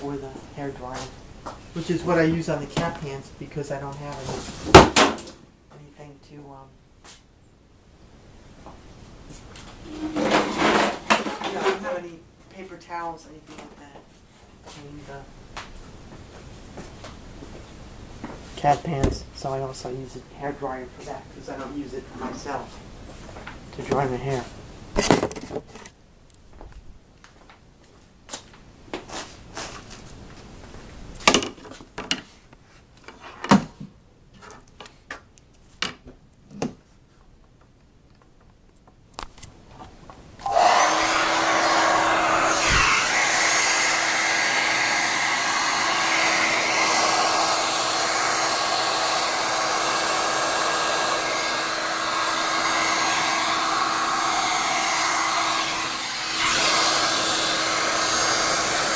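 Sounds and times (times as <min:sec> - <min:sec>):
hair dryer running: 0:40.4 - 0:58.9.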